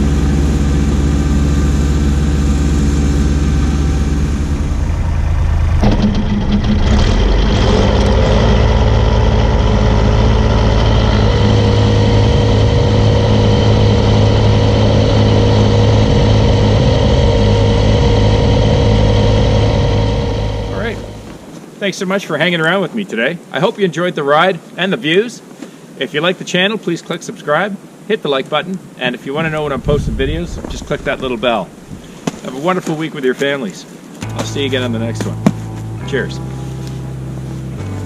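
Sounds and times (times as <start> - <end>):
diesel tractor engine running: 0.0 - 21.5.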